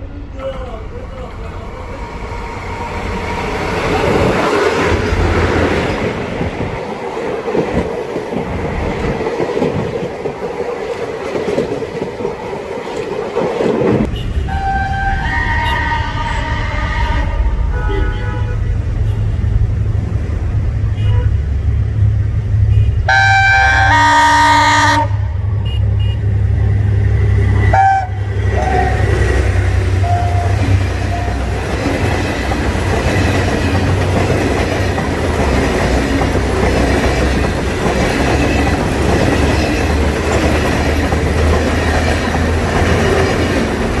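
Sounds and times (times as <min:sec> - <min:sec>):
moving train rolling: 0:00.0 - 0:44.0
train horn: 0:14.1 - 0:19.3, 0:22.7 - 0:26.2, 0:27.7 - 0:29.2, 0:30.0 - 0:31.4.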